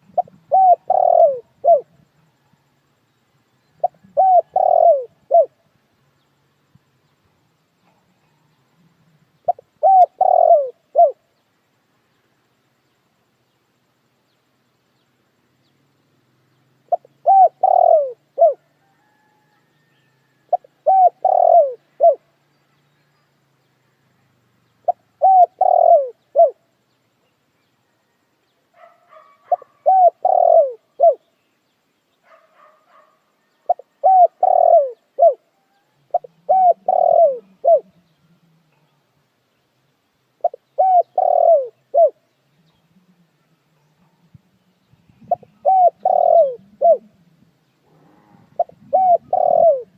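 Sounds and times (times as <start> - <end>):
dove cooing: 0.0 - 2.6, 3.7 - 5.6, 7.8 - 11.3, 16.8 - 22.4, 24.8 - 26.7, 28.8 - 31.3, 32.3 - 39.0, 40.4 - 44.4, 45.1 - 49.9
faint bird calls: 0.0 - 49.9.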